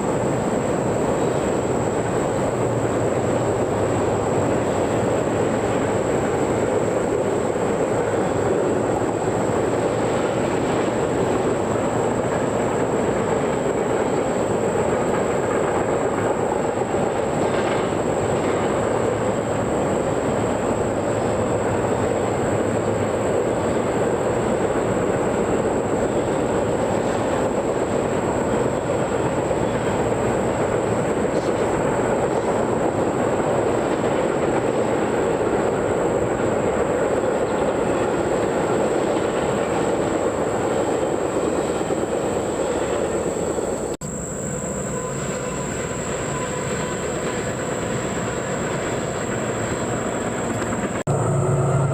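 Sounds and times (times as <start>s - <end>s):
train wheels on rails: 0.0s - 51.9s.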